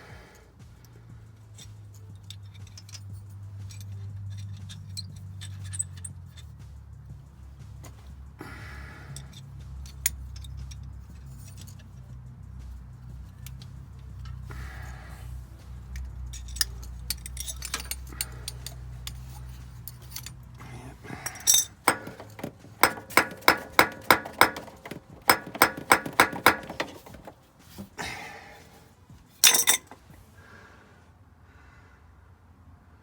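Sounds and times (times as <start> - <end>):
ringing metallic clinks of tools: 16.3 - 19.2, 21.2 - 27.3, 29.4 - 30.0.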